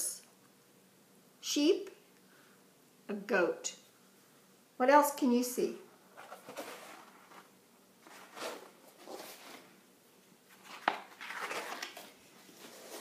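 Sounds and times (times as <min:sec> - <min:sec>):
book pages rustling: 0:06.1 - 0:09.8, 0:10.5 - 0:13.0.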